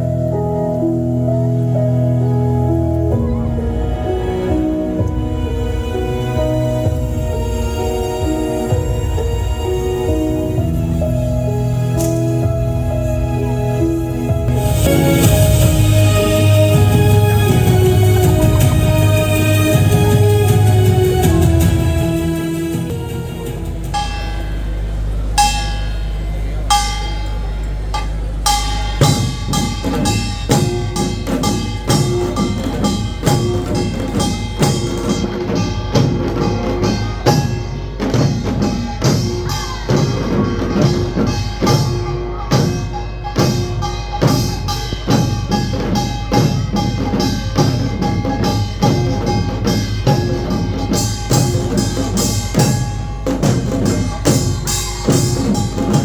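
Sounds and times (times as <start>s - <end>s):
clashing cymbals: 0.0s - 56.0s
percussion music: 0.0s - 56.0s
ringing metallic strikes: 0.0s - 56.0s
drum beat: 3.0s - 24.3s, 29.0s - 56.0s.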